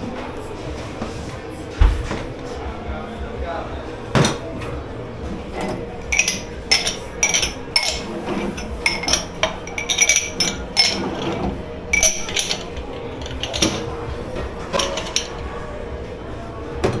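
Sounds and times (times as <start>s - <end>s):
steady background hum: 0.0s - 17.0s
dishes and cutlery clinking: 4.1s - 15.8s.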